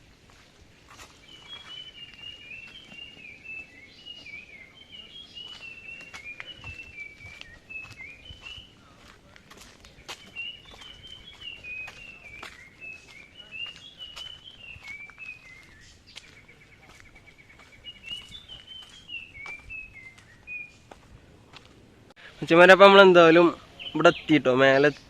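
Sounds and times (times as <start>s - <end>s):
footsteps crunching on path: 0.0s - 22.2s
songbird singing whistled notes: 0.9s - 21.1s, 23.2s - 25.0s
bird trill: 1.2s - 8.8s, 10.0s - 20.9s.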